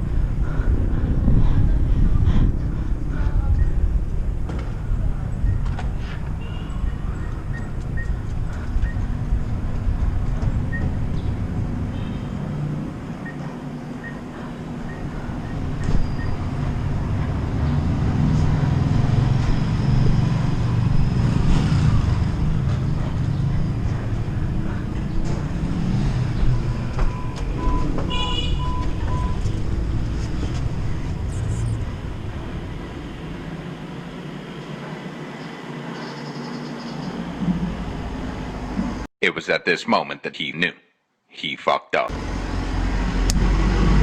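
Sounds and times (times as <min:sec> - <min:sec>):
motor vehicles rumbling: 0:00.0 - 0:39.1, 0:42.1 - 0:44.0
short beeps: 0:27.1 - 0:29.4.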